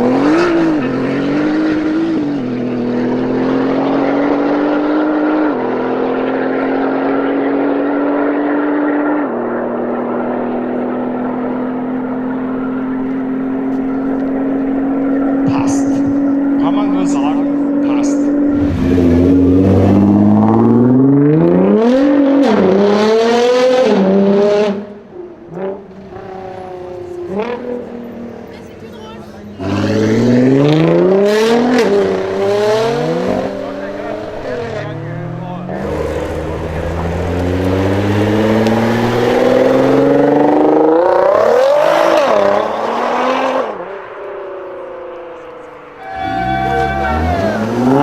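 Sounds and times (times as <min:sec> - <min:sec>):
car engine accelerating hard: 0:00.0 - 0:48.0.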